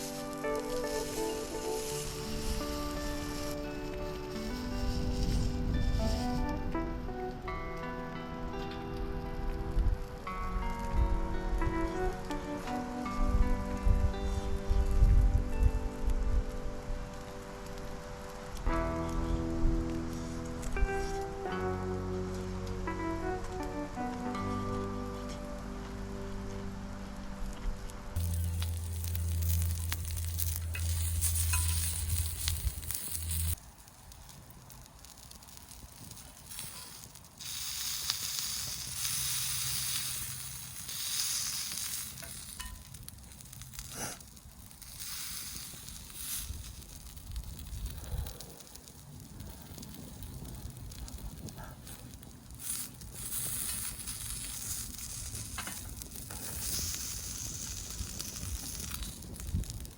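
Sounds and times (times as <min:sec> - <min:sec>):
fire pops and clicks: 0:00.0 - 0:07.9, 0:27.5 - 0:59.9
sausages sizzling over campfire: 0:00.0 - 0:59.9
low steady hum: 0:24.8 - 0:33.6.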